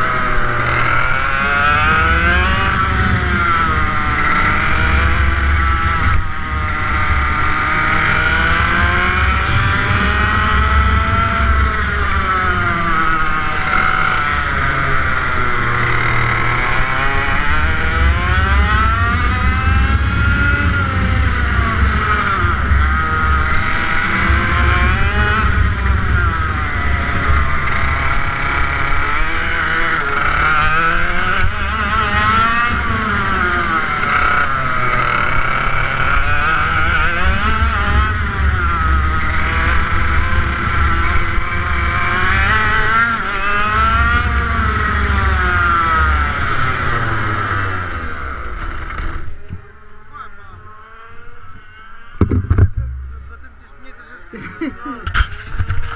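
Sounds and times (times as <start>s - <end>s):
kart engine accelerating: 0.0s - 55.9s.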